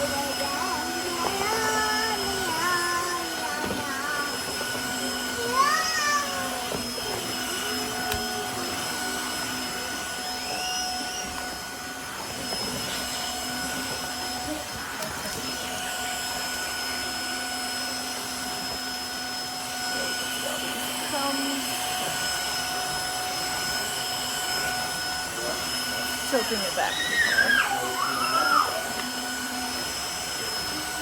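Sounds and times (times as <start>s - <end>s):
vacuum mop motor whine: 0.0s - 31.0s
rising-and-falling vocal calls: 26.8s - 28.9s.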